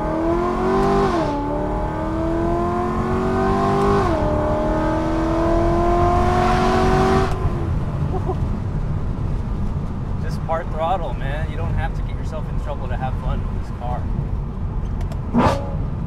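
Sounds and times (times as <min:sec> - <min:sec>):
engine exhaust at full throttle: 0:00.0 - 0:10.5
wind and road rumble: 0:00.0 - 0:16.0.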